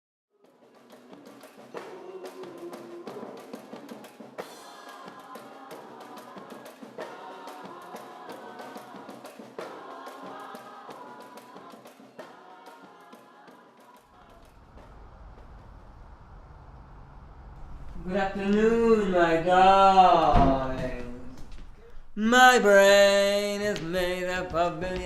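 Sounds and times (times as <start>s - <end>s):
music with percussive beat: 0.4s - 14.1s, 22.2s - 25.0s.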